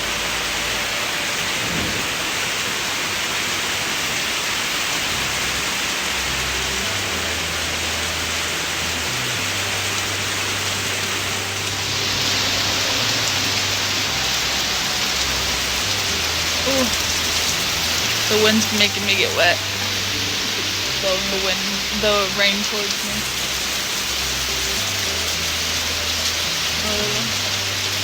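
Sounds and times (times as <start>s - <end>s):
low rumble: 0.0s - 2.8s
heavy rain falling: 0.0s - 28.0s.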